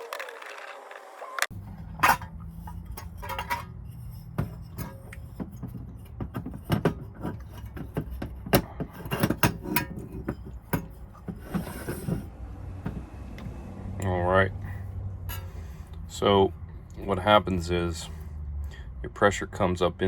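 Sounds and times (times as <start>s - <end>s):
metal parts clicking and scraping: 1.6s - 12.3s, 15.2s - 16.0s.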